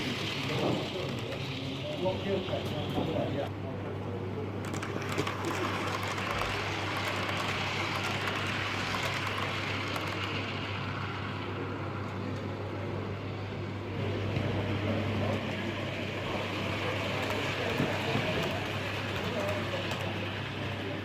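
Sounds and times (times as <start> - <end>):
model locomotive whirr: 0.0 - 21.0.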